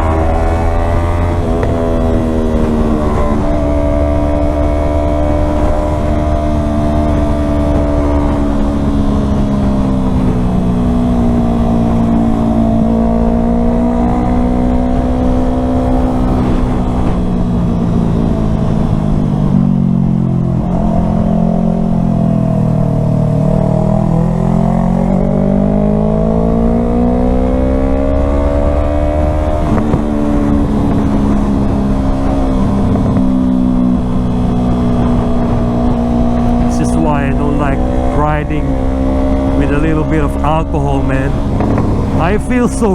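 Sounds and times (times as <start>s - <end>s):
motorcycle engine running: 0.0s - 26.1s, 29.5s - 42.9s.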